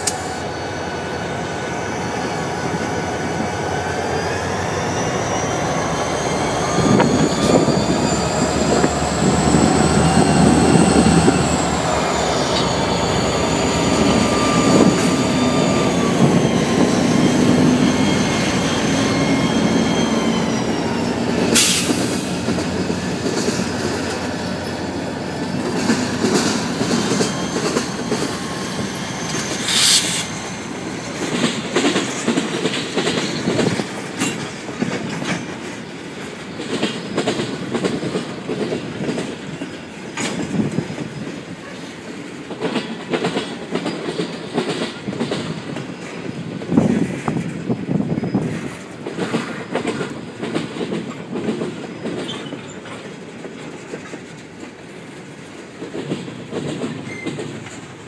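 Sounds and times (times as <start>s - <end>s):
train wheels clickety-clack: 0.0s - 0.4s, 4.9s - 58.0s
loud rushes of noise: 0.0s - 32.0s
locomotive whine and rumble: 0.0s - 41.8s.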